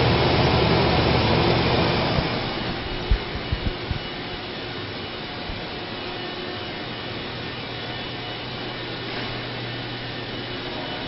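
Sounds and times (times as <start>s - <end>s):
mechanical whirring hum: 0.0s - 11.0s
low humming tone: 2.4s - 11.0s.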